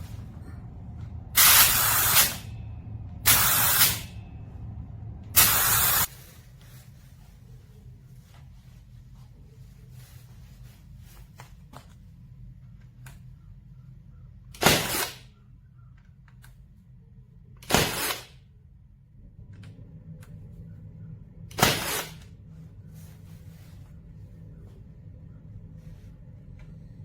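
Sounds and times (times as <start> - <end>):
nail gun firing: 1.4 - 2.4, 3.3 - 4.1, 5.4 - 6.1, 14.6 - 15.3, 17.6 - 18.4, 21.5 - 22.2.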